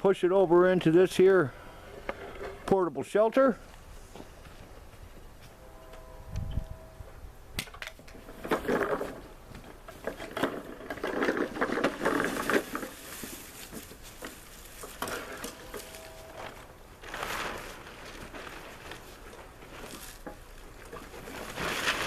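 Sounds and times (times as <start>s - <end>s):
pushed lawnmower rattling: 8.0s - 22.0s.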